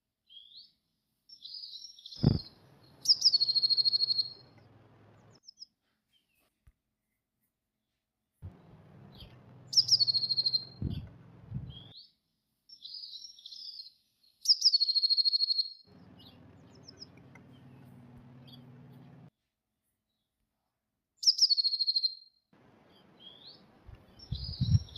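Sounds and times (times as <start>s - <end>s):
bird song with trill: 0.2s - 6.5s, 8.5s - 19.3s, 21.2s - 22.3s, 22.9s - 24.9s
soft bird calls: 1.4s - 6.5s, 8.5s - 12.1s, 12.8s - 19.3s, 22.8s - 24.9s
low electrical hum: 8.5s - 11.9s, 15.9s - 19.3s.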